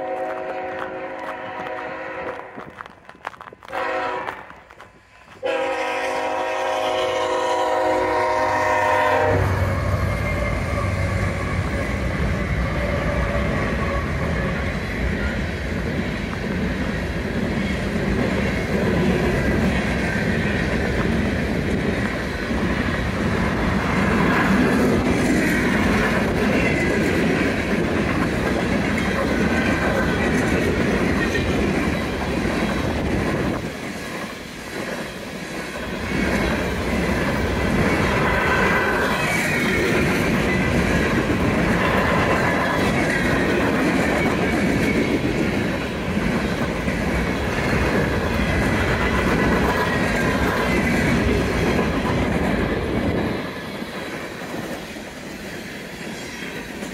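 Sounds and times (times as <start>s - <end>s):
locomotive air horn blast: 0.0s - 2.6s, 3.7s - 4.6s, 5.4s - 11.6s
freight train rumbling past: 0.0s - 56.9s.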